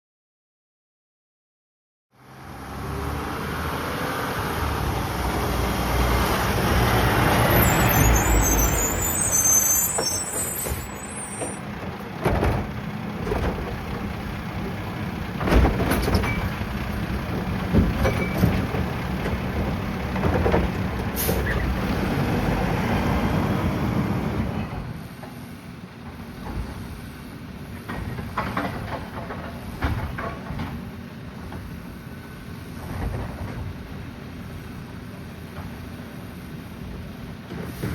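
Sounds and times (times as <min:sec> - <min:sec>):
garbage truck diesel engine: 0:02.2 - 0:37.9
air brake squeal and hiss: 0:07.4 - 0:11.6, 0:21.2 - 0:21.7, 0:37.6 - 0:37.9.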